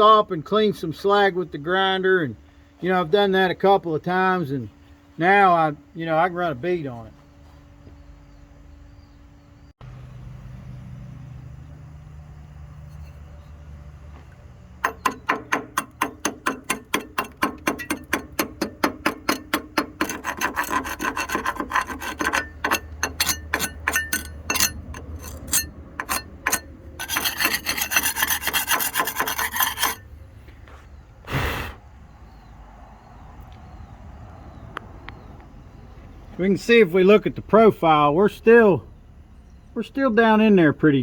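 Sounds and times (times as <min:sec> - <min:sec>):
short metal scrape: 0:14.8 - 0:30.1
wire brush scrubbing weld: 0:14.8 - 0:30.1.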